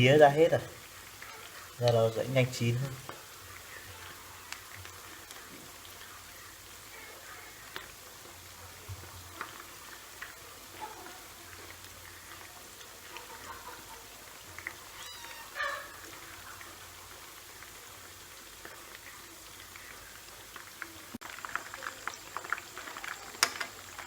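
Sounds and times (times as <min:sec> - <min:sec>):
chicken frying in hot oil: 0:00.0 - 0:24.0.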